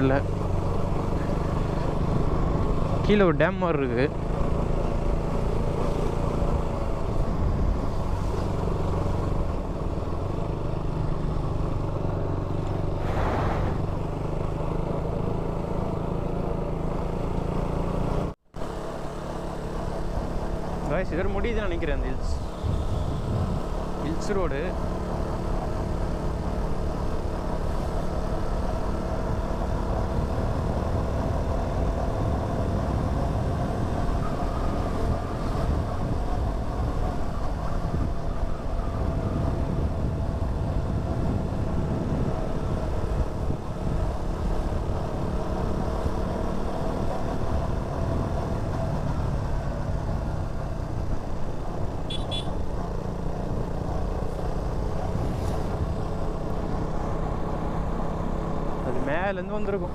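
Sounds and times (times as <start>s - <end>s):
motorcycle engine running: 0.0s - 13.0s, 13.9s - 59.9s
road rumble: 0.0s - 59.9s
wind on microphone: 22.4s - 23.7s, 30.0s - 44.3s
high-pitched horn beep: 52.1s - 52.6s.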